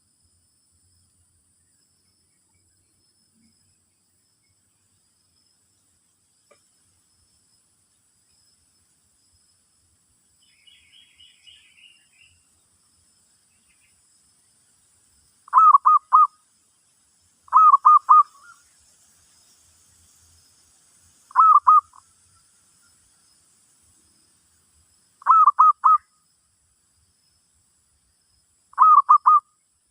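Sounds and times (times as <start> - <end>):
faint high insect hiss: 0.0 - 29.9
faint high chirps: 15.4 - 23.5, 25.2 - 26.3, 28.7 - 29.9
dove cooing: 15.5 - 16.3, 17.5 - 18.3, 21.3 - 21.9, 25.2 - 26.0, 28.8 - 29.4.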